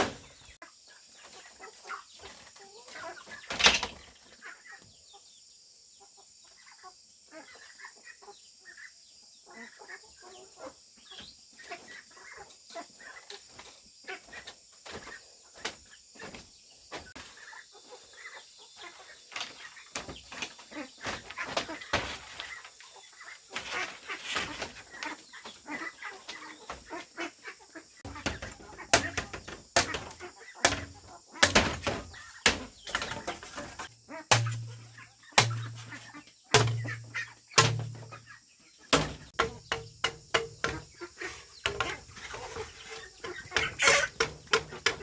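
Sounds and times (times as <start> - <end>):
chickens clucking: 0.0 - 5.3, 6.0 - 45.0
short knocks: 28.1 - 36.0, 36.6 - 38.2, 38.9 - 45.0
tool striking bamboo: 28.1 - 38.2, 38.9 - 45.0.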